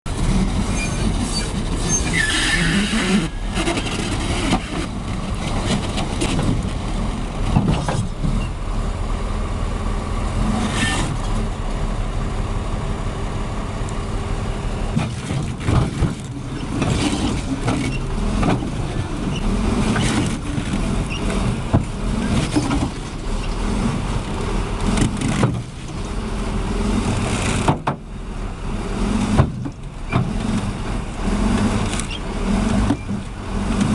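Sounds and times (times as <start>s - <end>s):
heavy vehicle engines running: 0.0s - 33.9s.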